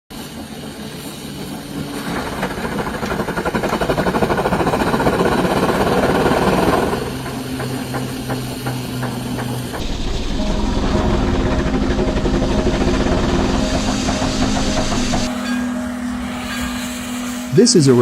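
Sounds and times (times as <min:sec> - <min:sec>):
steam engine beats: 0:00.1 - 0:18.0
low hum: 0:01.5 - 0:17.6.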